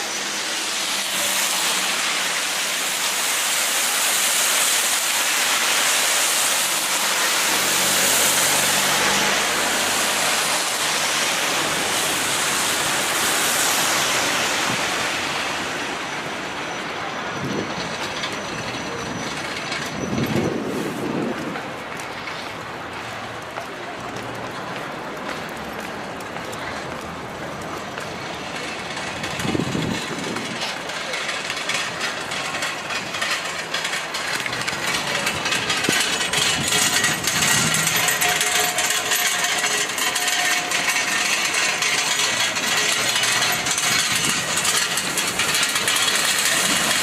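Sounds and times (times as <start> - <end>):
vehicle passing by: 6.2 - 16.2.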